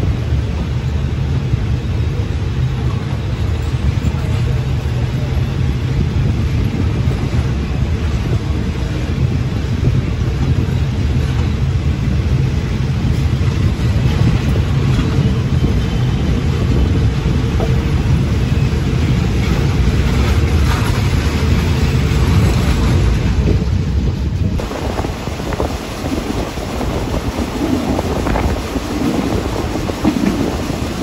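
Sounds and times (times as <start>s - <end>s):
train wheels rumbling on rails: 0.0s - 31.0s
wind rushing across microphone: 0.0s - 31.0s.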